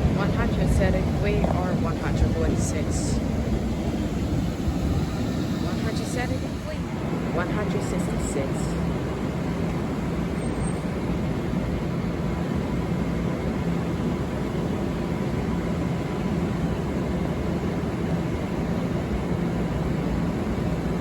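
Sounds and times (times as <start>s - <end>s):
train rumbling past: 0.0s - 12.5s
steady low hum: 0.0s - 21.0s.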